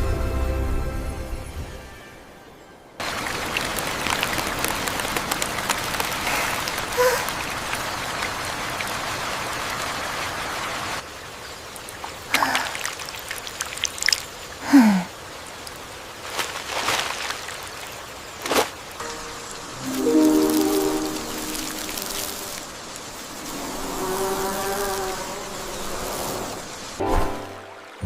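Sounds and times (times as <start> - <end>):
rain pattering: 3.0 - 27.0
loud sound sliding down in pitch: 19.0 - 25.3.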